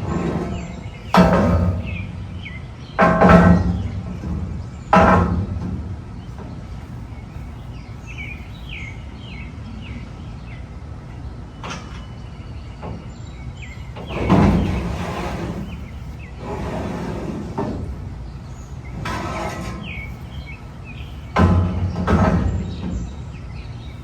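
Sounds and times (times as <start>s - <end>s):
loud thumps: 0.0s - 7.6s, 21.3s - 23.2s
small birds chirping: 0.0s - 24.0s.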